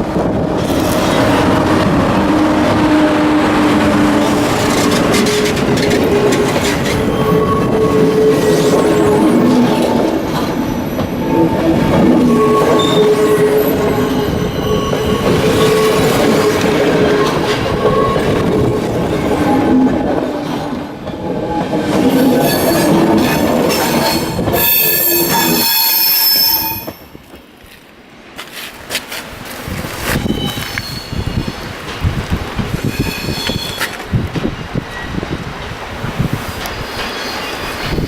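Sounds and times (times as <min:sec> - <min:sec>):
wheels clacking over rail joints: 0:00.0 - 0:24.7
train wheel squeal: 0:03.9 - 0:20.0, 0:21.4 - 0:27.2, 0:30.1 - 0:32.0, 0:32.8 - 0:35.3, 0:36.3 - 0:38.0.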